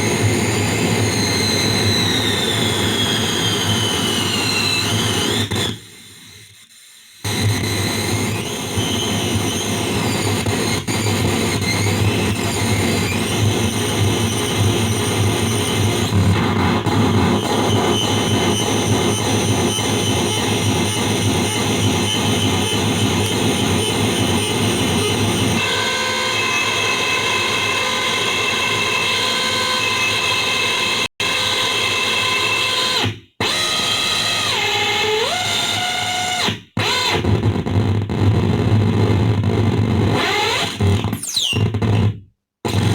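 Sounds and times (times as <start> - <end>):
whistling electronic tones: 41.0 - 42.0.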